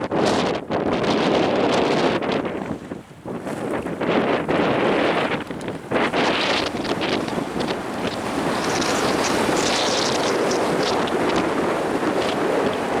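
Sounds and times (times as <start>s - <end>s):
strong wind on microphone: 0.0s - 13.0s
storm waves crashing: 2.6s - 13.0s.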